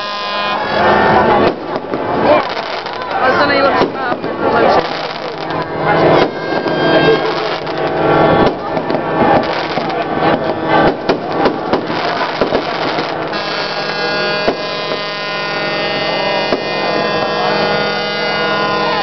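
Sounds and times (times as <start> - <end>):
fireworks bangs and crackles: 0.0 - 19.0
people's voices: 0.0 - 19.0
hum of held tones: 13.2 - 19.0.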